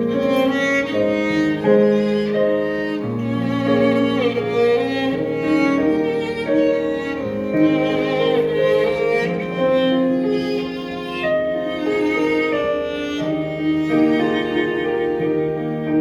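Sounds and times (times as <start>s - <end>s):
string ensemble playing slow melody: 0.0s - 16.0s.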